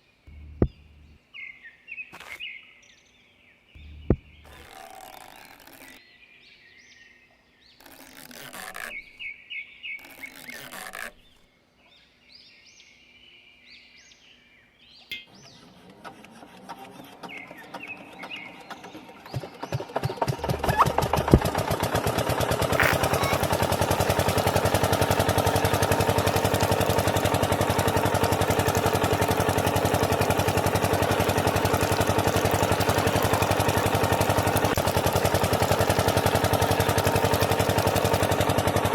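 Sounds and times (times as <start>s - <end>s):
birds chirping: 0.0s - 15.9s, 16.7s - 21.6s, 22.3s - 38.8s
small engine starting and running: 3.8s - 6.0s, 7.7s - 9.2s, 10.0s - 11.4s, 15.3s - 38.9s.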